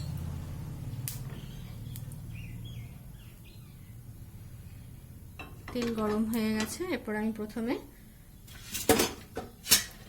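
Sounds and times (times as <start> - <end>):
birds chirping: 1.2 - 5.5.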